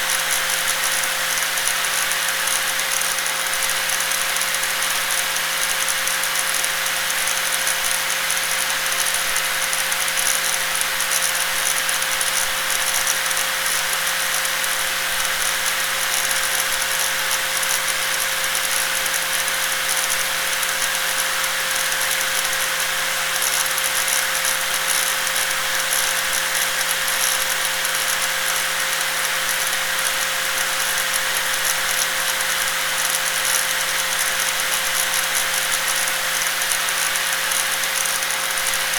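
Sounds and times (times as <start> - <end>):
angle grinder running: 26.3 - 38.9.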